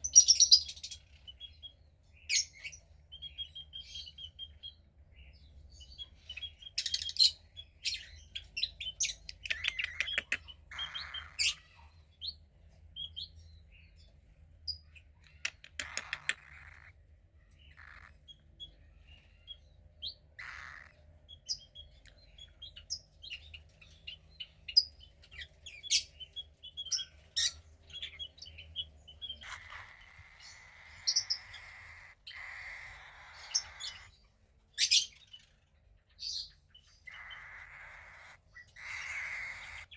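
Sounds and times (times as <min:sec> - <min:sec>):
cockatiel chick chirping: 0:05.9 - 0:11.8, 0:15.2 - 0:16.9, 0:17.7 - 0:18.7, 0:24.4 - 0:34.2, 0:36.3 - 0:39.9.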